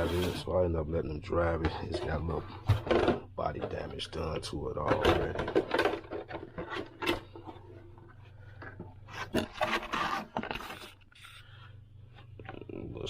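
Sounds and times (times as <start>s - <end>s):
plastic shell scraping and rubbing: 0.0s - 0.5s, 4.8s - 11.5s.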